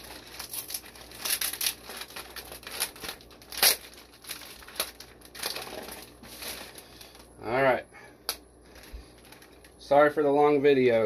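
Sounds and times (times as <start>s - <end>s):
plastic bag crinkling and tearing: 0.0s - 7.3s, 8.6s - 9.8s.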